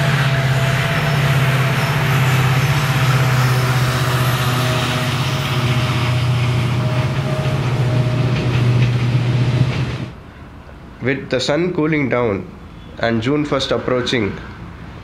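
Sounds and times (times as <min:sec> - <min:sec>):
train low drone: 0:00.0 - 0:11.1
wheels rumbling on rails: 0:00.0 - 0:11.1.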